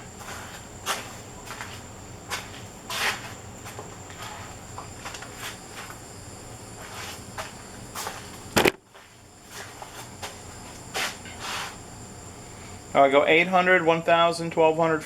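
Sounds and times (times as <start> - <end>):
sharp knock: 8.6 - 8.8.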